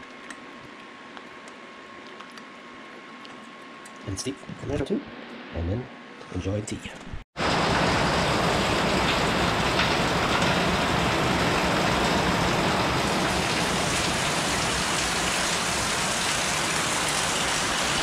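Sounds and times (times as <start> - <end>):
heavy rain on hard surfaces: 7.4 - 18.0.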